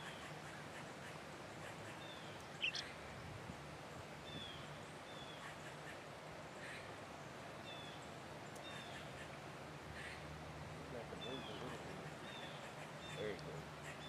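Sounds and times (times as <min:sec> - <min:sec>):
faint bird chirps: 0:00.0 - 0:03.0, 0:11.1 - 0:14.0.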